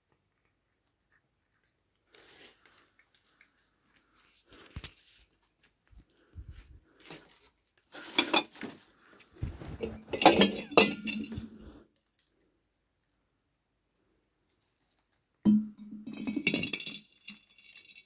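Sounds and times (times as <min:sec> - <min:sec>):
hard objects clattering: 0:09.4 - 0:11.8.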